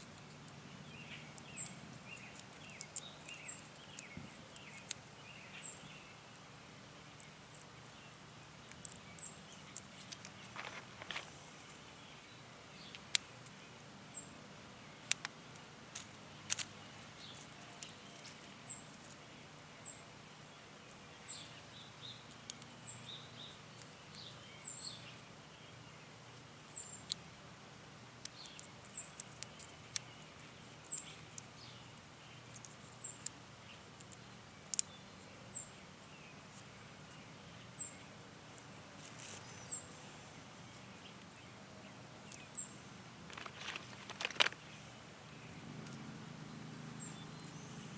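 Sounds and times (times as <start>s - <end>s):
small bird chirping: 0.0s - 27.4s, 28.1s - 47.9s
clicks and rustles of plants: 8.6s - 11.9s, 15.0s - 19.3s, 38.9s - 39.8s, 43.2s - 44.8s.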